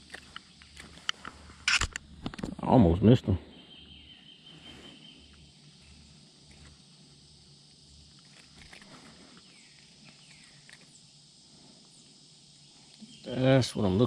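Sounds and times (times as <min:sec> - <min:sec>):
light clicks and rustles: 0:00.0 - 0:02.6, 0:08.1 - 0:10.9
high insect hum: 0:00.0 - 0:14.0.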